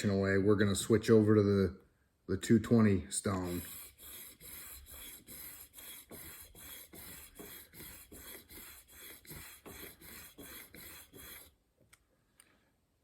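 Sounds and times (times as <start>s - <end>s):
blade rasping on sharpening plate: 3.4s - 11.5s.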